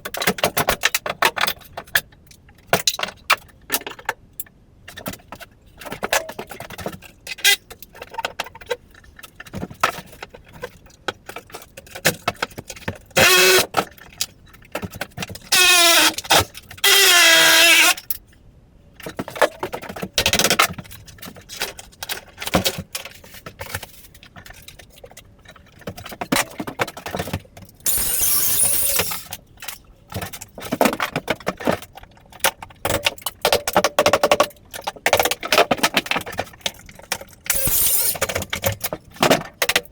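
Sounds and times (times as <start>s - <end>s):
loud screeching bursts: 16.8s - 18.0s, 27.9s - 29.3s, 37.5s - 38.2s
hand tools and boards clattering: 19.0s - 39.9s.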